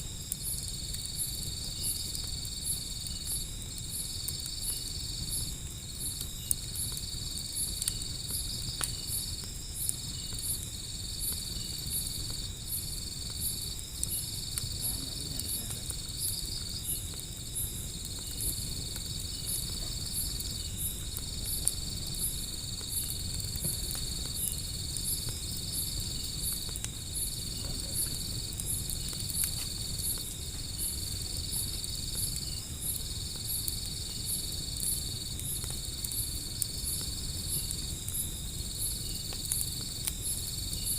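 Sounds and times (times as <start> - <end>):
crickets chirping: 0.0 - 40.9
wood fire crackling: 0.0 - 40.9.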